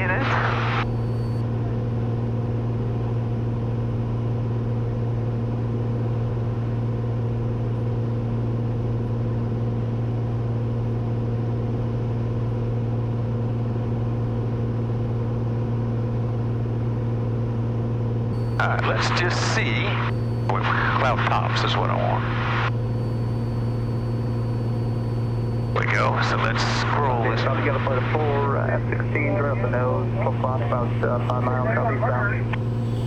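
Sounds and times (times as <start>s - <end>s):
airplane engine and propeller droning: 12.2s - 33.0s.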